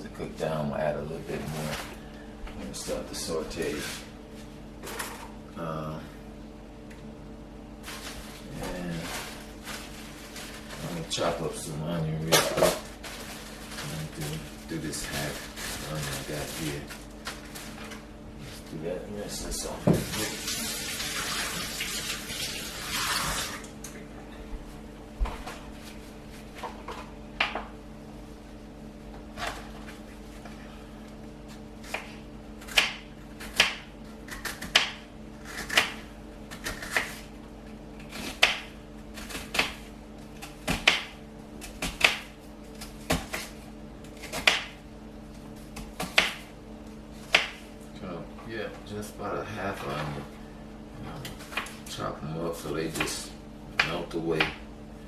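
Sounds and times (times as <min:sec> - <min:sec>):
low steady hum: 0:00.0 - 0:55.0
water running from tap: 0:20.1 - 0:23.7
knife chopping on cutting board: 0:31.8 - 0:37.3, 0:38.0 - 0:42.3, 0:43.0 - 0:43.5, 0:44.2 - 0:44.8, 0:45.7 - 0:46.5, 0:47.2 - 0:47.6.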